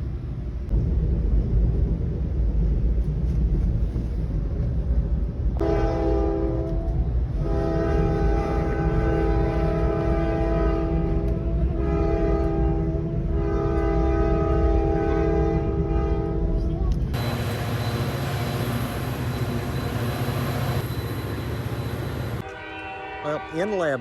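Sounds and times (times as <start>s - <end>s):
low train rumble: 0.0s - 24.0s
train horn blasts: 5.6s - 16.6s, 22.3s - 24.0s.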